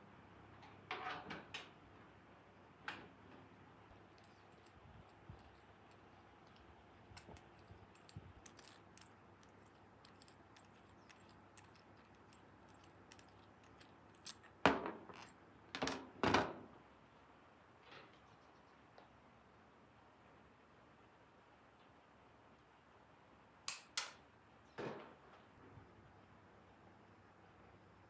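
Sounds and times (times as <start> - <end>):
small objects clicking and tapping: 4.1 - 15.9.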